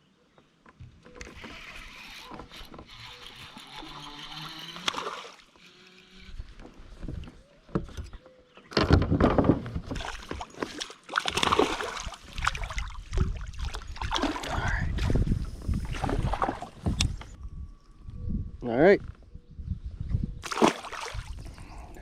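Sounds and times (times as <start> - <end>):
water sloshing: 9.9 - 17.0, 20.4 - 21.5.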